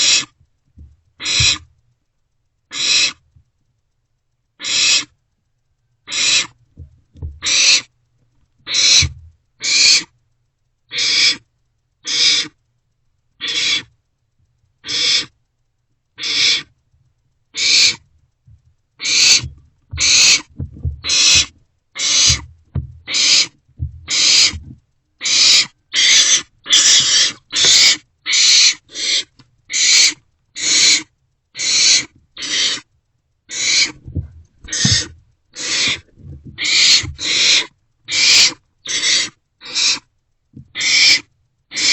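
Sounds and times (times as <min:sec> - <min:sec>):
owlets hissing begging calls: 0:00.0 - 0:00.3, 0:01.2 - 0:01.6, 0:02.7 - 0:03.2, 0:04.6 - 0:05.1, 0:06.1 - 0:06.6, 0:07.4 - 0:07.9, 0:08.7 - 0:10.1, 0:10.9 - 0:11.4, 0:12.0 - 0:12.6, 0:13.4 - 0:13.9, 0:14.8 - 0:15.3, 0:16.2 - 0:16.7, 0:17.6 - 0:18.0, 0:19.0 - 0:24.6, 0:25.2 - 0:32.9, 0:33.5 - 0:40.1, 0:40.8 - 0:41.9.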